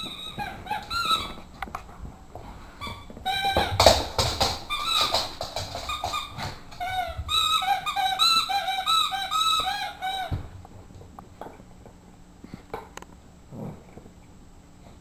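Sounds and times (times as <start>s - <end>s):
dog squeaky toy squeaking: 0.0s - 1.4s, 4.7s - 10.4s.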